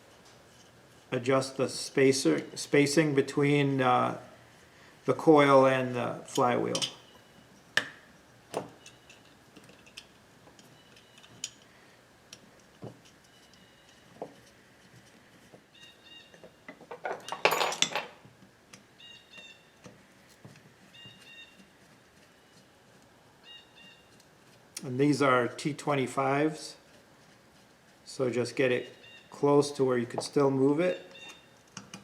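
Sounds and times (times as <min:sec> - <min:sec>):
metal clicks of screws and tool: 0:08.8 - 0:11.7
faint bird chirps: 0:19.0 - 0:19.8, 0:20.9 - 0:21.6, 0:23.4 - 0:24.2, 0:28.8 - 0:29.4, 0:30.9 - 0:31.6.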